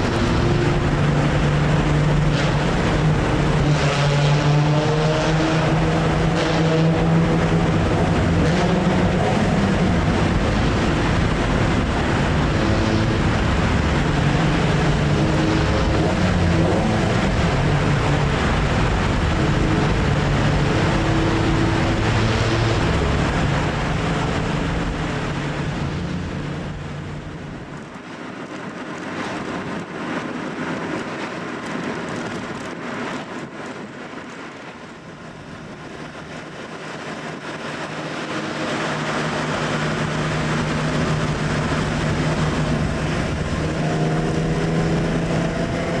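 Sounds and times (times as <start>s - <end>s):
car engine and exhaust: 0.0s - 46.0s.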